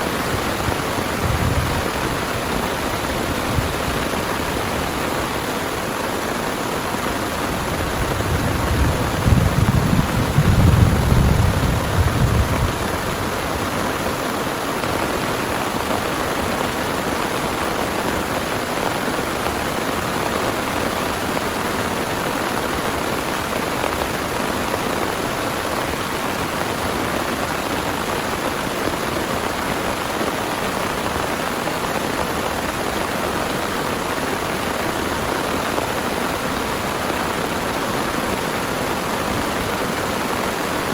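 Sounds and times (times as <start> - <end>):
heavy rain: 0.0 - 40.9
thunder rumble: 1.0 - 2.2, 7.8 - 13.4.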